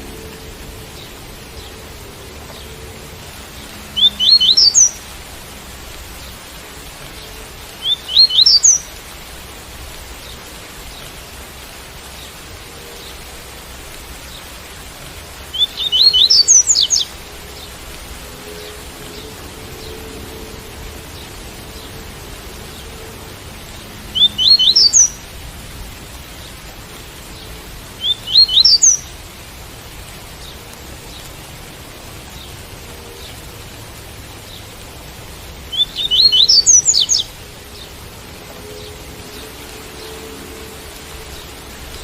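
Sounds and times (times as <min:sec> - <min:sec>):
rain hiss: 0:00.0 - 0:42.0
bird singing rising notes: 0:03.8 - 0:05.0, 0:07.8 - 0:08.8, 0:15.5 - 0:17.2, 0:24.1 - 0:25.2, 0:28.0 - 0:29.0, 0:35.7 - 0:37.9.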